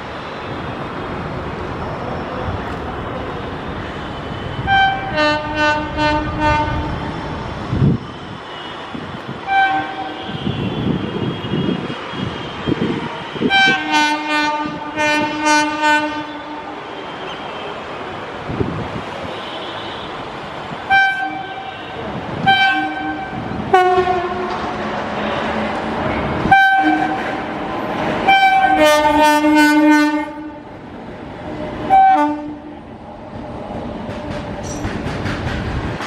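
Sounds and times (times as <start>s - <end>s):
freight train rolling rumble: 0.0s - 36.0s
locomotive horn toots: 4.4s - 7.4s, 9.5s - 17.8s, 20.9s - 25.5s, 26.4s - 27.4s, 28.2s - 30.6s, 31.8s - 32.7s.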